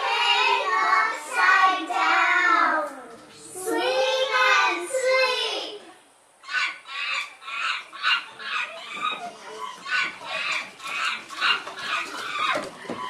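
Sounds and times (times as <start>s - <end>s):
rapid chattering animal calls: 6.4s - 12.9s.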